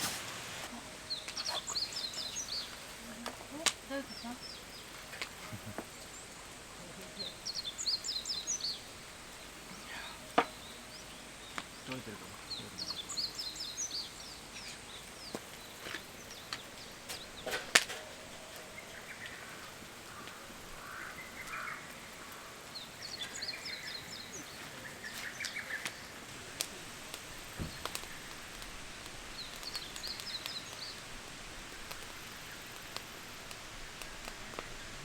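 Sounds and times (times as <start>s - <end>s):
birds singing short phrases: 1.0s - 6.2s, 7.0s - 15.4s.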